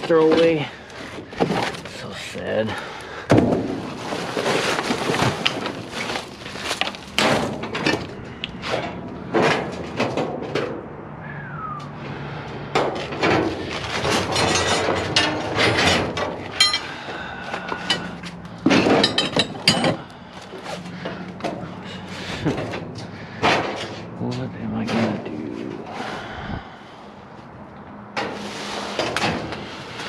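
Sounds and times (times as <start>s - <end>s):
debris rustling and scraping: 0.0s - 10.8s, 12.1s - 24.1s
scrap metal clanking and banging: 0.0s - 10.9s, 12.0s - 26.2s, 28.1s - 30.0s.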